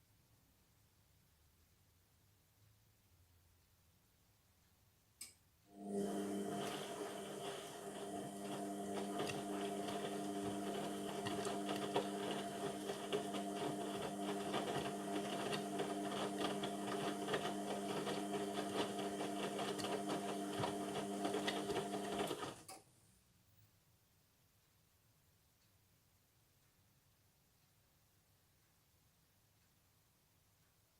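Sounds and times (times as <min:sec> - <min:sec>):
washing machine running: 0:05.7 - 0:22.7.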